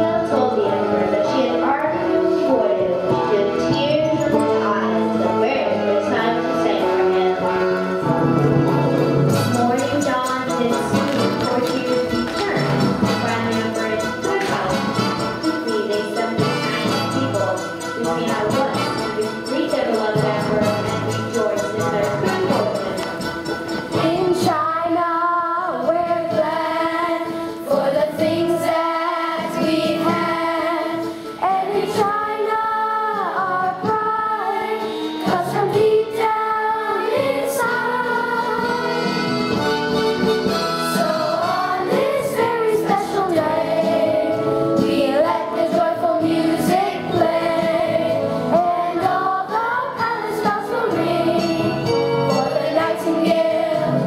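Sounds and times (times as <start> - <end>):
instrumental accompaniment: 0.0 - 54.0
voices singing a melody: 24.0 - 39.6, 40.8 - 54.0.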